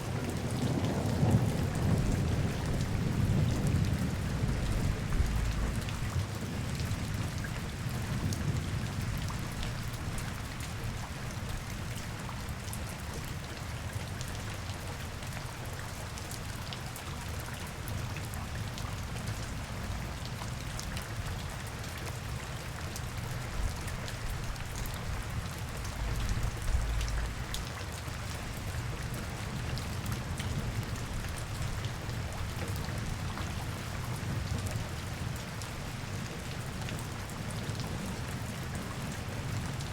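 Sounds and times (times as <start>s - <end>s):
raindrops ticking on surfaces: 0.0s - 39.9s
low rumble: 25.9s - 27.5s.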